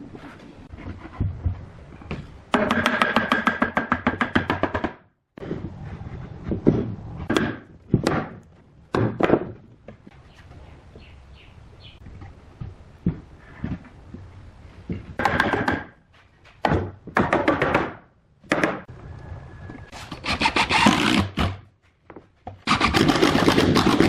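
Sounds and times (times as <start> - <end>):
hand tool rasping wood: 22.6 - 24.0.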